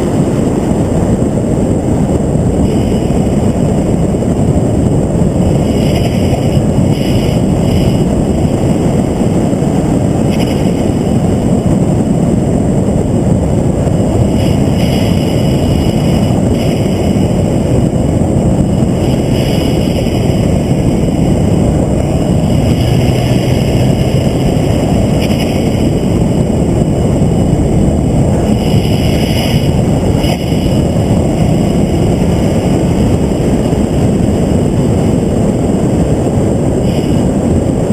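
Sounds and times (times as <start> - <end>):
engine running at speed: 0.0 - 37.9
rushing wind: 0.0 - 37.9.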